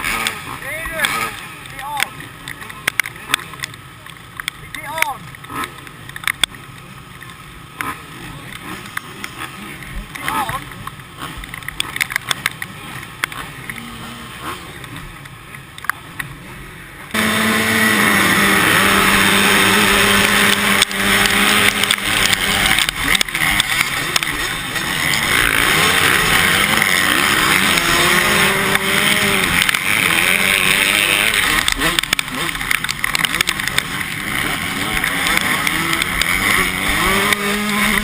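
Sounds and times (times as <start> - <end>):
motocross bike engines revving: 0.0 - 38.0
clicks: 0.1 - 13.9, 14.8 - 16.4, 19.7 - 38.0.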